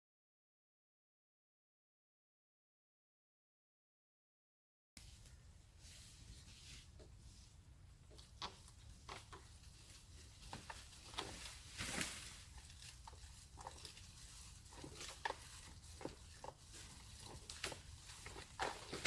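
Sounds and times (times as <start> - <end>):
light crackles and rustles: 5.0 - 19.0.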